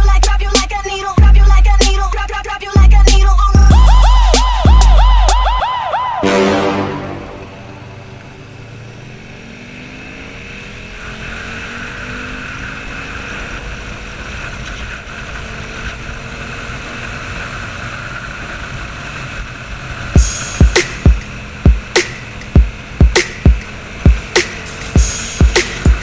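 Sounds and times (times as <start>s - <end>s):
road and wind noise: 0.0s - 26.0s
motorcycle engines running: 7.7s - 26.0s.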